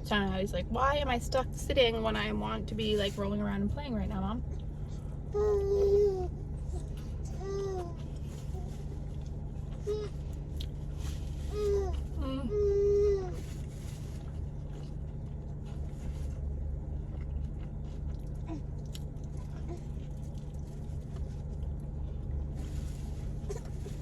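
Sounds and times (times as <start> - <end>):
low hum inside car: 0.0 - 24.0
baby chewing and biting: 14.2 - 22.3.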